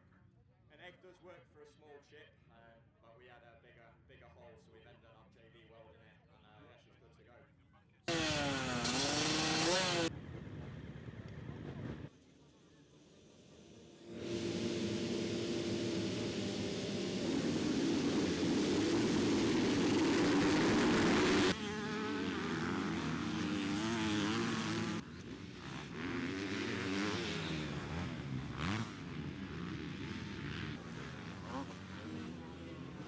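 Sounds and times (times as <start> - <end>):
motocross bike engines revving: 8.1 - 10.1, 13.1 - 33.0.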